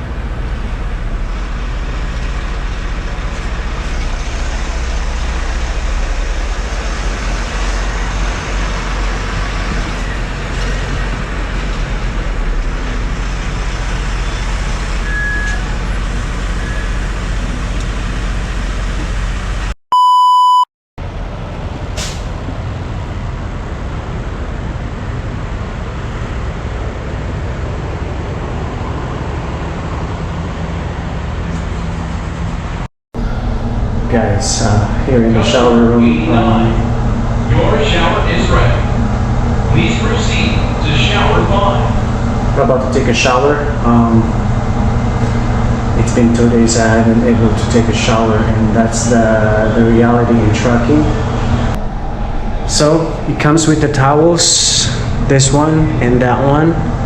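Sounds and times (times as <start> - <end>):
road noise: 0.0 - 19.8, 21.0 - 57.0
truck engine hum: 0.0 - 19.8, 21.0 - 57.0
loud electronic beep: 19.9 - 20.7.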